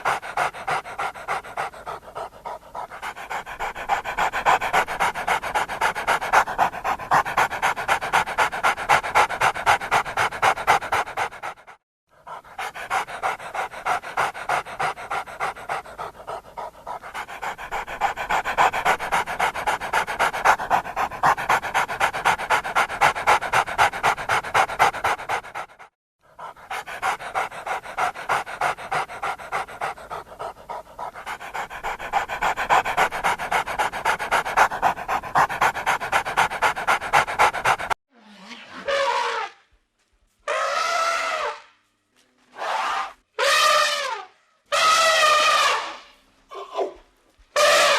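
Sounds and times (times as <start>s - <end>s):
dog panting fast: 0.0s - 38.0s.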